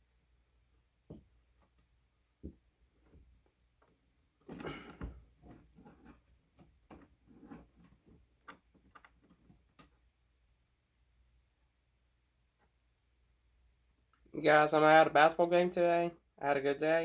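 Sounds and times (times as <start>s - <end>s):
soft handling knocks and clicks: 1.0s - 10.1s.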